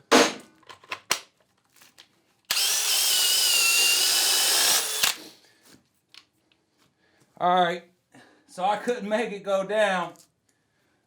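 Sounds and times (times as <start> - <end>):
hammer drill motor whining: 2.5 - 5.2.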